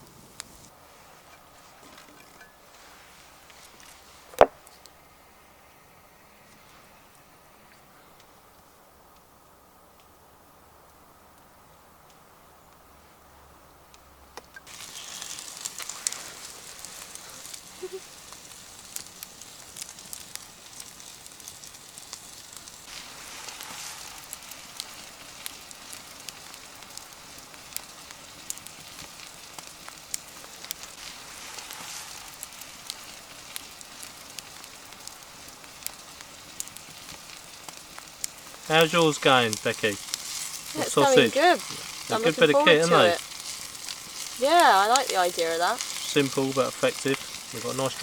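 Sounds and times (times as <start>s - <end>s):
campfire crackling and popping: 0.0s - 5.1s, 13.9s - 48.0s
food sizzling: 14.6s - 48.0s.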